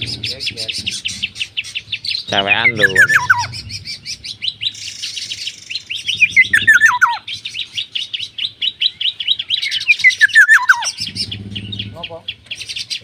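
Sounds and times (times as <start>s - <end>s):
songbird chirping: 0.0s - 13.0s.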